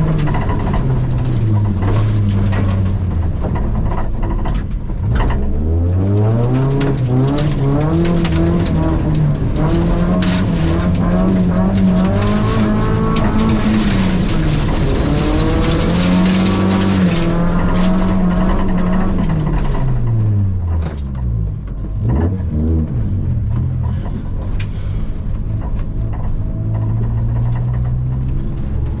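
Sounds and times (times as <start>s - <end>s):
rally car engine revving: 0.0s - 29.0s.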